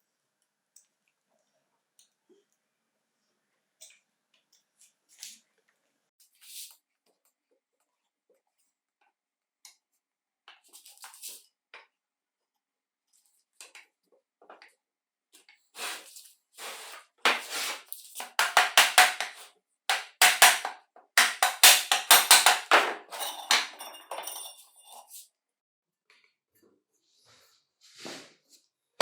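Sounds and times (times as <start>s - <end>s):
metal parts clinking and scraping: 21.2s - 25.2s.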